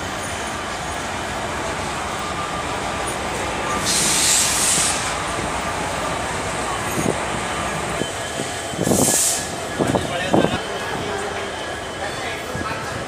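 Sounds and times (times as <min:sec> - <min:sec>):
train rumble: 0:00.0 - 0:13.0
short bursts of high hiss: 0:03.8 - 0:05.2, 0:08.8 - 0:09.6.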